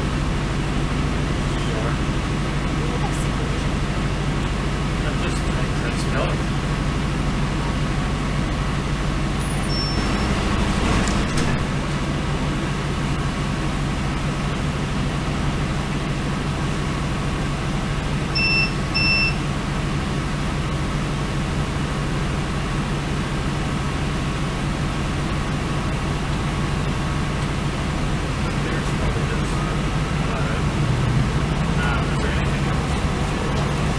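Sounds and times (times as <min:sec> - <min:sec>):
train carriage rumble: 0:00.0 - 0:33.9
short high beeps: 0:09.4 - 0:10.3, 0:18.3 - 0:19.4.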